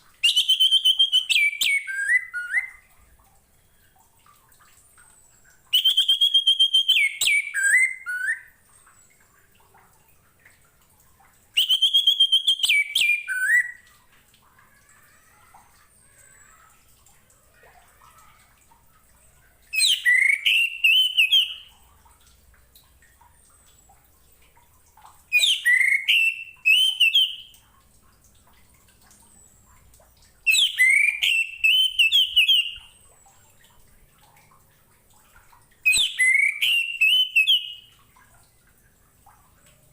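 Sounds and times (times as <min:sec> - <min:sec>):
thrush singing whistled phrases: 0:00.2 - 0:02.9, 0:05.7 - 0:08.6, 0:11.6 - 0:13.9, 0:19.7 - 0:21.7, 0:25.3 - 0:27.5, 0:30.5 - 0:32.9, 0:35.8 - 0:37.9.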